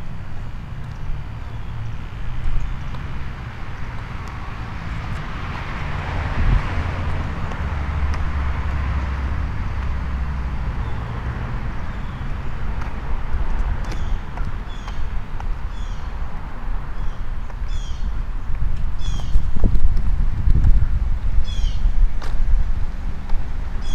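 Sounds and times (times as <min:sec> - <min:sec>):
steady low rumble: 0:00.0 - 0:23.9
car driving past: 0:02.3 - 0:14.1.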